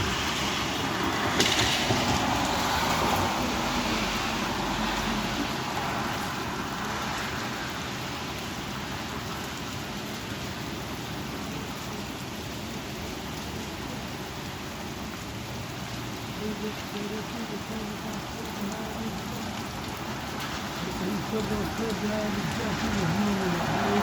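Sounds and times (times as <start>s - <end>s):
strong wind: 0.0s - 10.4s
heavy rain: 0.0s - 24.0s.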